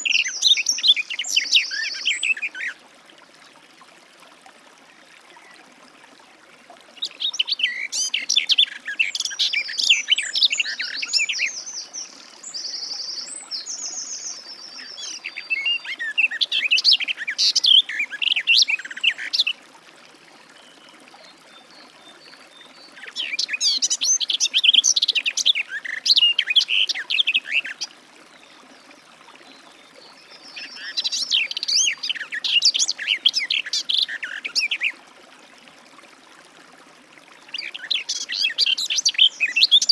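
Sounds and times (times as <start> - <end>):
warbler singing: 7.2 - 19.5.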